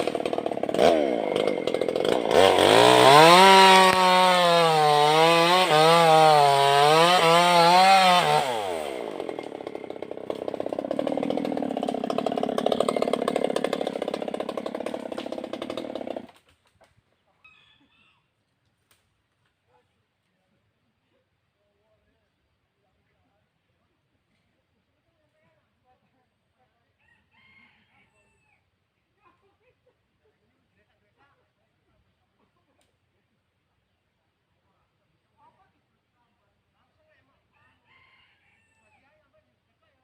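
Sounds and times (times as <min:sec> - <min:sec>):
chainsaw revving and idling: 0:00.0 - 0:16.5.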